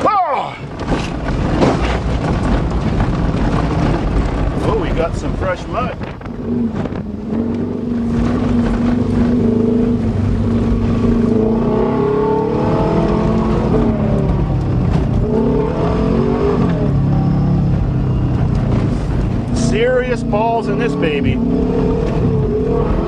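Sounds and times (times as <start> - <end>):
car engine revving: 0.6 - 23.0.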